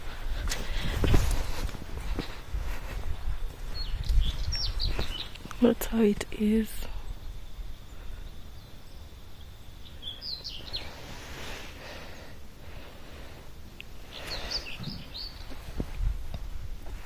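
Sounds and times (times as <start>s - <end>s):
bird chirping: 3.4s - 11.1s, 14.0s - 15.7s.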